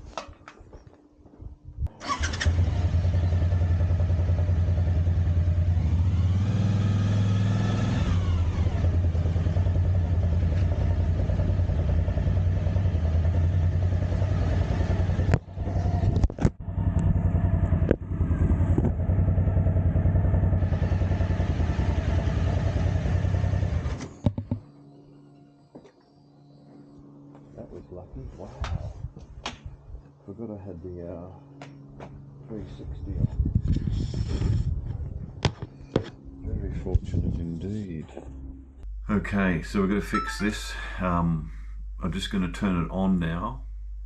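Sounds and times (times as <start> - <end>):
motorcycle engine revving: 1.9 - 24.3.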